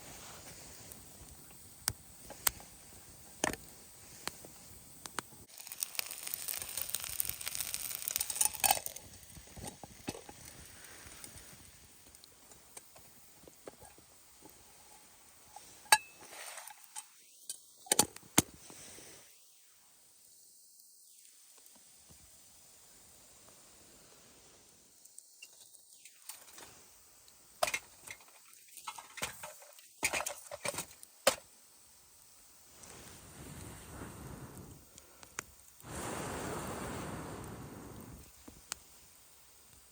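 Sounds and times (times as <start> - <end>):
rustling hiss: 0.0 - 39.9
campfire crackling and popping: 0.4 - 14.6, 32.7 - 39.9.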